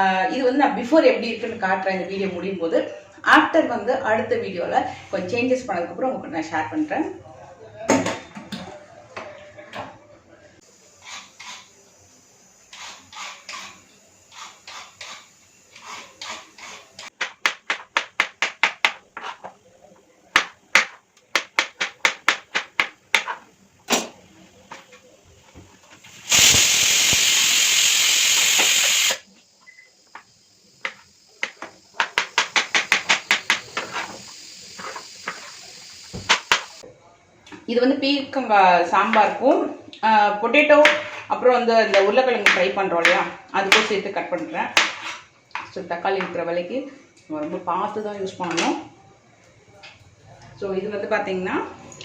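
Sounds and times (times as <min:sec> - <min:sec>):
loud steady hiss: 0:10.6 - 0:36.9
knife chopping vegetables: 0:12.7 - 0:19.5, 0:20.3 - 0:23.5, 0:30.8 - 0:34.2, 0:41.9 - 0:43.9, 0:44.8 - 0:45.7.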